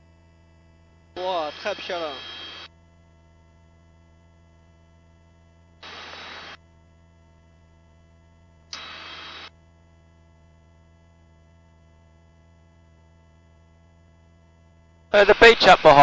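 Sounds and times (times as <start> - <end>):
intercom hum: 1.2 - 2.7, 5.8 - 6.6, 8.8 - 9.5.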